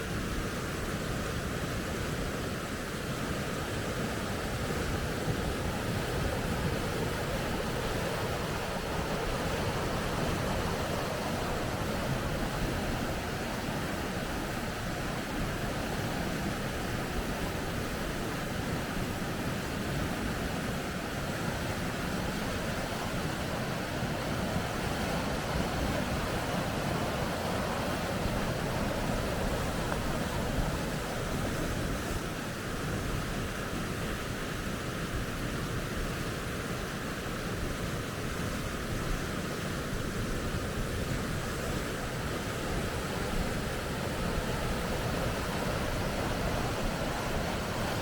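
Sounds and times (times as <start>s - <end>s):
river rapids rushing: 0.2s - 48.0s.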